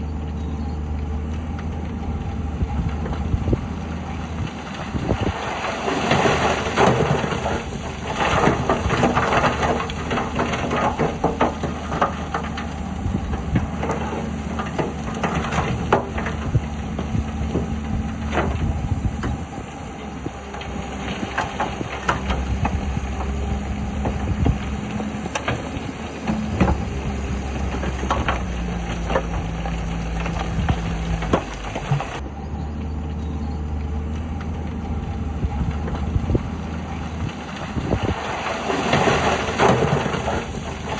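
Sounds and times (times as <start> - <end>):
earthmoving machinery diesel engines: 0.0 - 40.9
clanks and knocks: 5.8 - 32.2.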